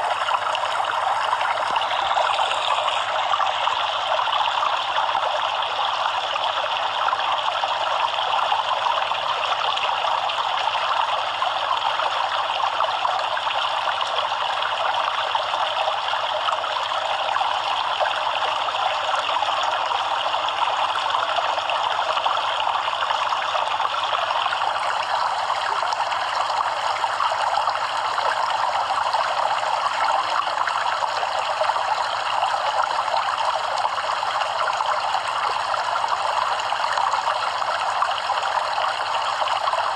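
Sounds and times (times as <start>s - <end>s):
stream water running over rocks: 0.0s - 6.0s.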